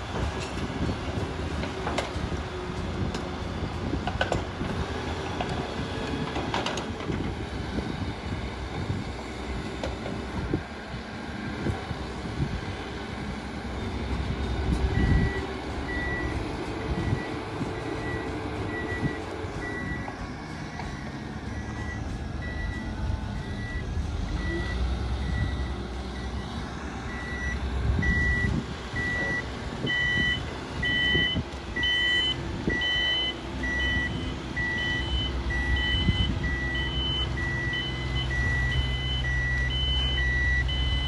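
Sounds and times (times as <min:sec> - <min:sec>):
diesel engine rumble: 0:00.0 - 0:41.0
reversing alarm beeping: 0:14.7 - 0:41.0
higher beep: 0:18.0 - 0:20.1, 0:20.8 - 0:26.5.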